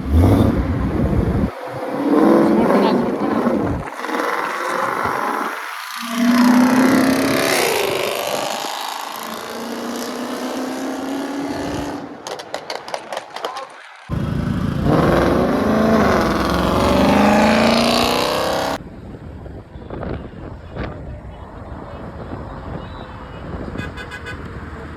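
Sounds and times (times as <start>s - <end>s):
car exhaust revving: 0.0s - 12.4s, 14.1s - 18.8s
exhaust crackles: 0.0s - 18.8s.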